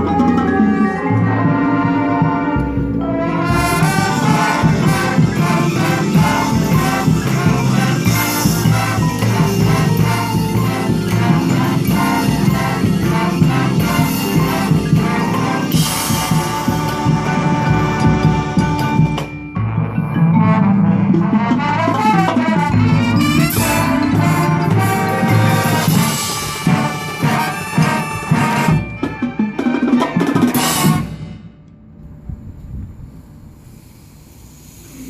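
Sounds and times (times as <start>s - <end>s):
marching band playing: 0.0s - 31.6s
brass chords: 0.0s - 32.5s
drum line: 0.0s - 33.0s.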